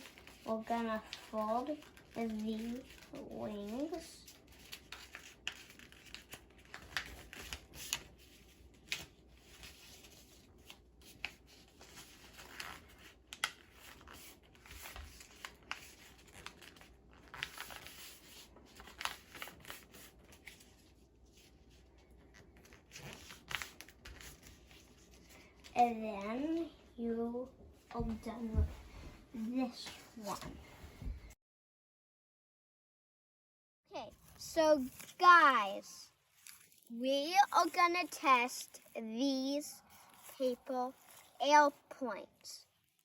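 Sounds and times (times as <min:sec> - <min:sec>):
paper rustling and crinkling: 0:00.0 - 0:26.7, 0:29.4 - 0:31.2, 0:34.1 - 0:43.0.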